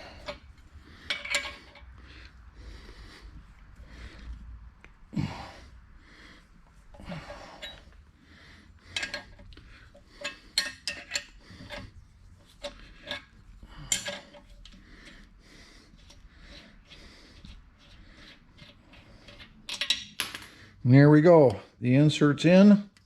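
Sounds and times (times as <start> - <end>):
tool scrapes and creaks: 0.0 - 2.4, 6.7 - 20.8.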